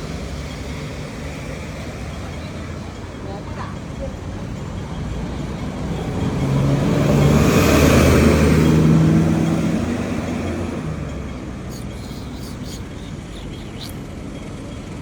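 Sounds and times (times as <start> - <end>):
vehicle passing by: 5.0 - 14.2.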